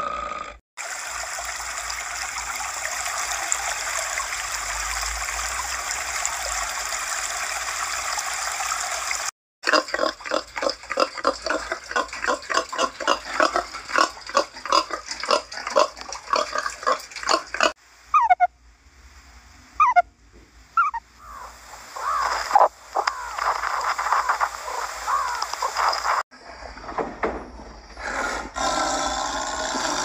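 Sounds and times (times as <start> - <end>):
meerkats chirping: 18.2 - 18.5, 20.8 - 26.0
wild boars grunting: 28.0 - 30.0.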